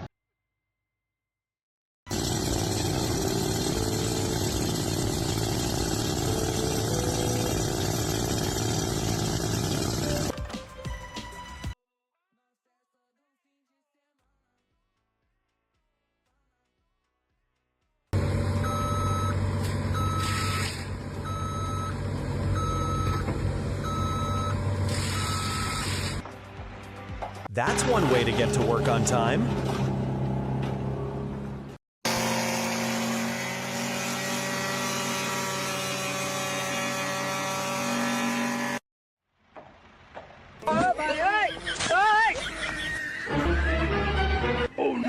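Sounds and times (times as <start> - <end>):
engine running: 2.1 - 10.4, 18.2 - 26.3, 27.4 - 38.8
reversing alarm beeping: 18.6 - 26.2.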